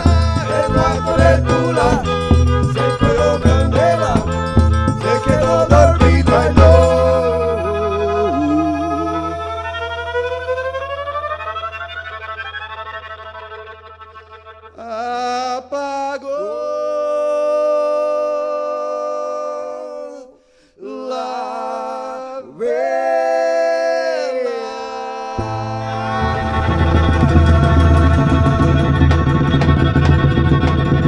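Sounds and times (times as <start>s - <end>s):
keyboard tone: 0.0s - 14.2s
low bass notes: 0.0s - 14.8s, 25.4s - 31.0s
sliding held melody notes: 0.0s - 14.8s, 25.4s - 31.0s.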